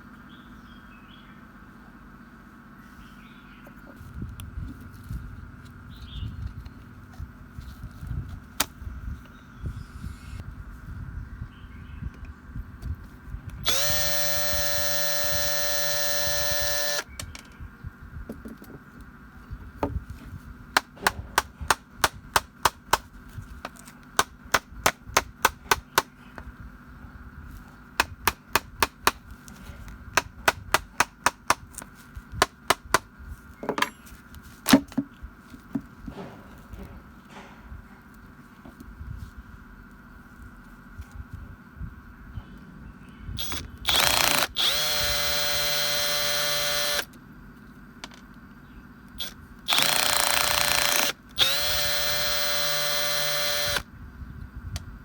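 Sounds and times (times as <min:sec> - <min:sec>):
small power tool motor: 0:13.6 - 0:17.2, 0:43.4 - 0:47.2, 0:49.2 - 0:53.9.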